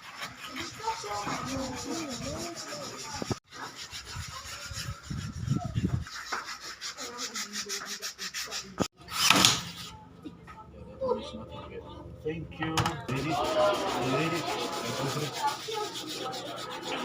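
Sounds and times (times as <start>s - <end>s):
sanding wood by hand: 0.0s - 8.9s, 13.1s - 17.0s.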